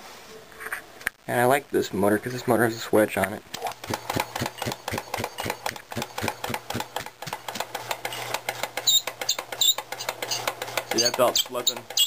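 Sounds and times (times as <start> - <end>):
air compressor knocking: 3.7 - 12.0.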